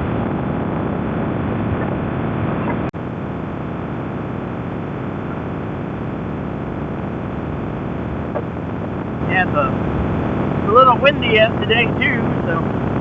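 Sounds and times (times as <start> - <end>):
wind rush on microphone: 0.0 - 13.0
motorcycle engine running: 3.0 - 13.0.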